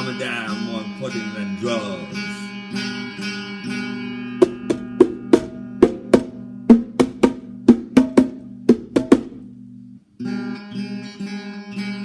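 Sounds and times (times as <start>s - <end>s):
acoustic guitar chords: 0.0s - 12.0s
drum hits: 4.4s - 9.4s.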